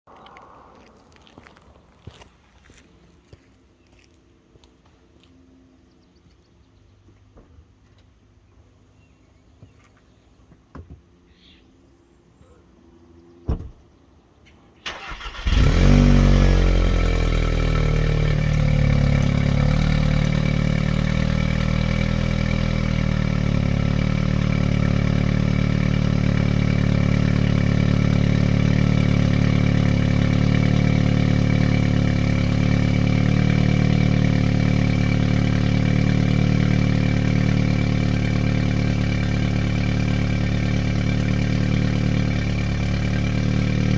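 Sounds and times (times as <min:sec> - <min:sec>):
car engine starting and idling: 0:14.8 - 0:43.9.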